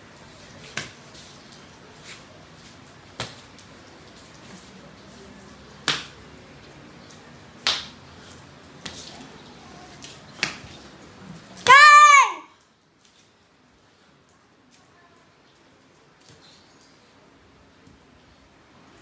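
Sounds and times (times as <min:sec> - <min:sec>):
sharp snaps or slaps: 0:00.7 - 0:01.0, 0:03.2 - 0:03.5, 0:05.8 - 0:06.2, 0:07.6 - 0:08.0, 0:10.4 - 0:10.6.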